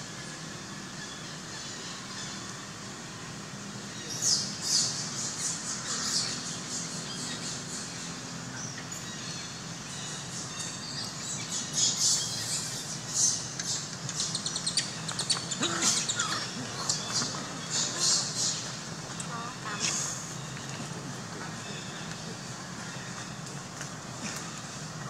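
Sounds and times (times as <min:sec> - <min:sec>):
small birds chirping: 0:03.9 - 0:23.5.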